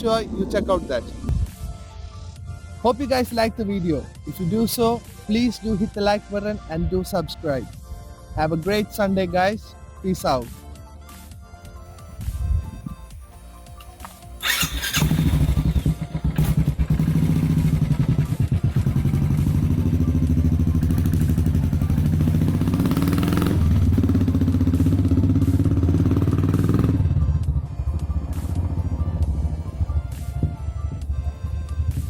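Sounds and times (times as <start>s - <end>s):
background music: 0.0s - 32.0s
motorcycle engine pulsing: 14.4s - 30.5s.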